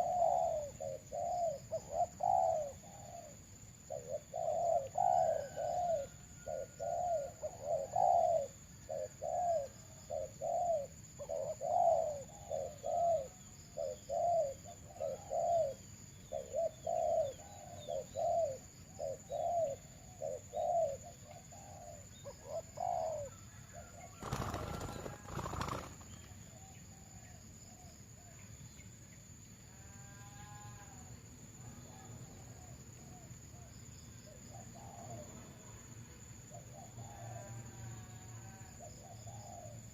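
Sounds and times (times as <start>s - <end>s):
dove cooing: 0.0s - 28.3s, 34.3s - 35.4s, 38.4s - 39.9s
faint bird calls: 0.0s - 28.9s, 29.8s - 35.5s, 36.5s - 39.9s.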